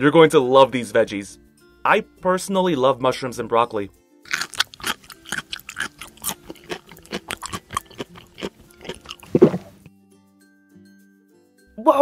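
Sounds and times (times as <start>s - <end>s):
crunchy chewing: 4.3s - 9.9s
loud deep crunch: 4.3s - 9.9s.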